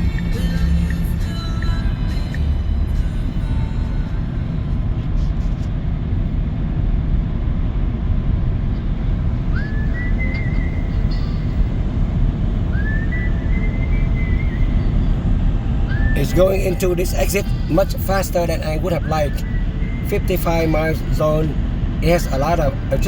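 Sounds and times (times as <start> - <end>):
road and tyre noise in car: 0.0 - 23.0
high whistle-like squeal: 8.8 - 23.0.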